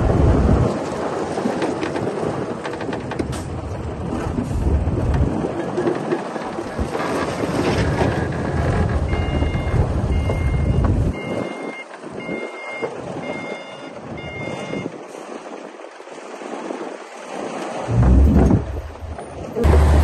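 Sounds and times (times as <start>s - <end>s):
bulldozer diesel engine rumbling: 0.0s - 15.8s, 17.9s - 20.0s
backup alarm beeping: 9.1s - 14.9s, 17.9s - 19.3s.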